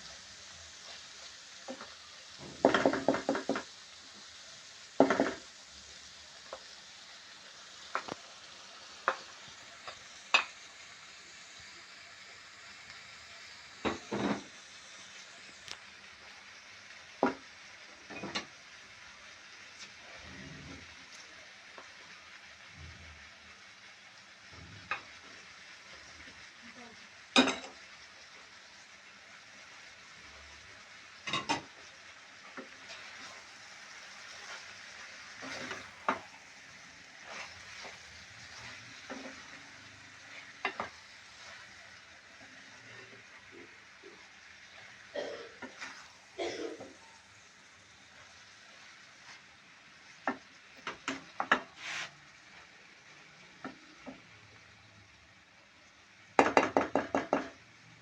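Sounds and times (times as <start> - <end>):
food sizzling in a pan: 0.0 - 58.0
spoon knocking against pan: 1.7 - 3.7, 5.0 - 5.5, 35.4 - 36.3, 40.6 - 41.0, 56.4 - 57.6
spoon scraping pan: 31.2 - 44.3, 45.6 - 46.2, 50.2 - 52.2.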